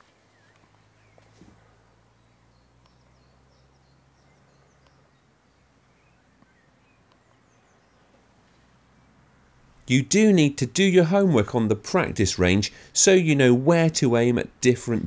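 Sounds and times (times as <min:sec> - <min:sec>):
distant bird chirps: 0:00.0 - 0:09.9.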